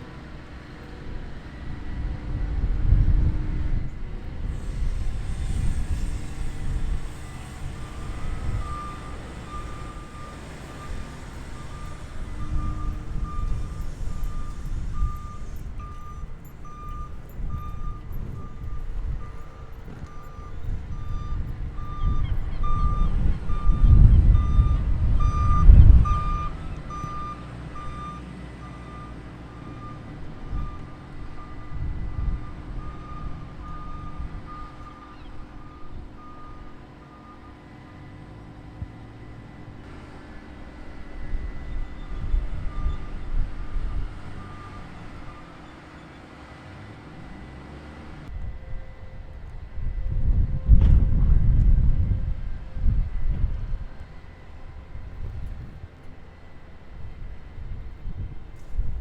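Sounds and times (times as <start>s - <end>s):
wind buffeting microphone: 0.0s - 37.0s, 37.6s - 59.0s
vehicle reversing alarm beeping: 3.8s - 59.0s.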